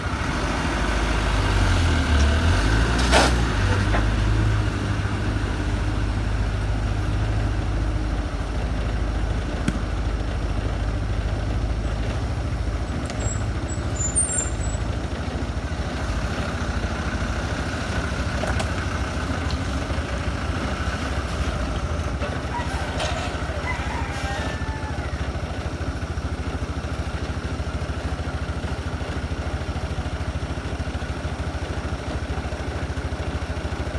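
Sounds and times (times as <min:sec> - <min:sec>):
truck engine rumbling: 0:00.0 - 0:33.9.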